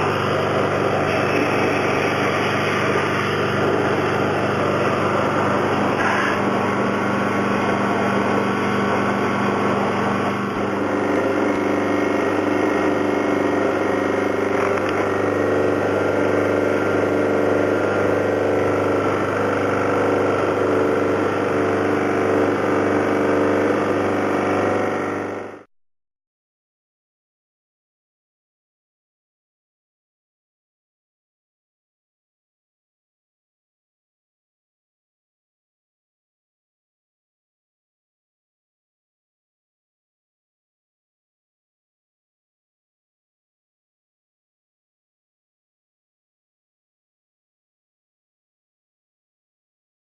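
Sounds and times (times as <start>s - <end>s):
small motor running: 0.0s - 25.7s.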